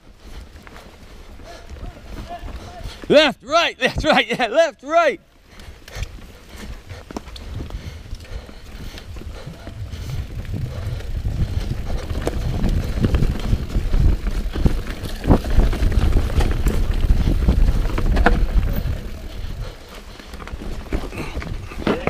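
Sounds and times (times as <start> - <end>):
bike tyres on dirt and rock: 0.0 - 22.0
bike knocking and rattling: 0.2 - 3.1, 5.4 - 22.0
wind buffeting microphone: 5.7 - 22.0.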